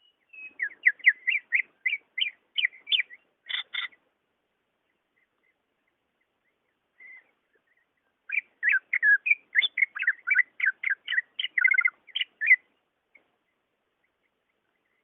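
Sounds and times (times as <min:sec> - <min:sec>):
bird singing whistled notes: 0:00.0 - 0:04.0, 0:04.9 - 0:12.9, 0:13.5 - 0:15.0.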